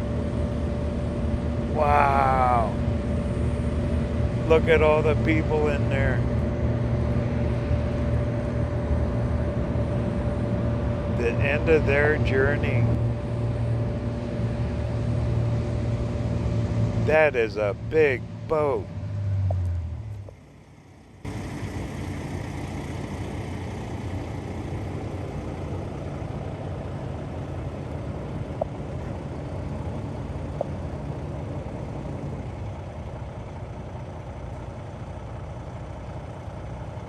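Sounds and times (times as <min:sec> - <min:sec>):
large engine idling: 0:00.0 - 0:37.0.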